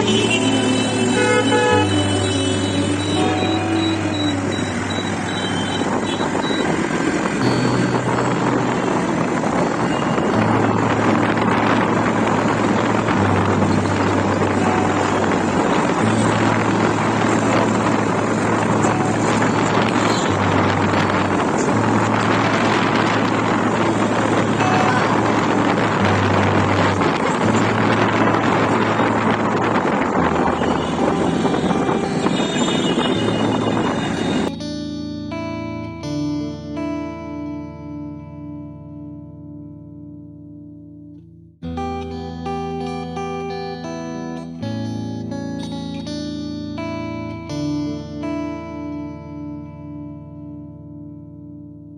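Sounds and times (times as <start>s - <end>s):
low engine hum: 0.0s - 34.5s
road vehicle rushing noise: 0.0s - 34.6s.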